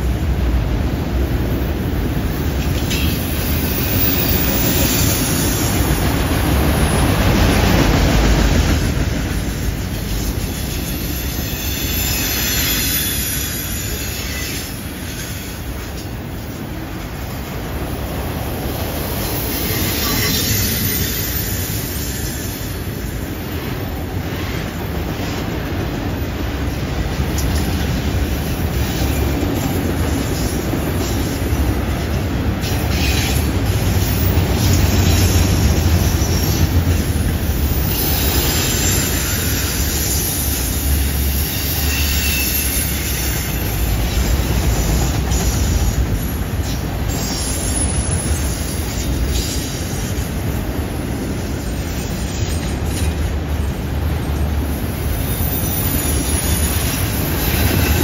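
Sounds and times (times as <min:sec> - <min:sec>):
wheels rumbling on rail: 0:00.0 - 0:58.0
wheel squeal: 0:10.7 - 0:15.6, 0:19.4 - 0:22.7, 0:37.6 - 0:44.1, 0:55.1 - 0:58.0.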